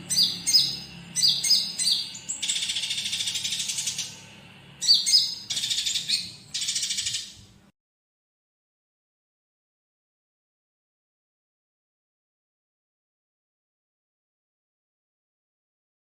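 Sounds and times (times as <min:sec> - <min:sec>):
songbird singing: 0:00.0 - 0:07.5.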